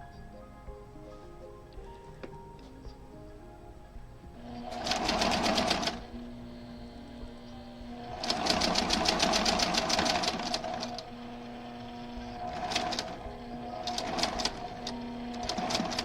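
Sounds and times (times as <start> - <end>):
sewing machine stitching: 4.4 - 16.0.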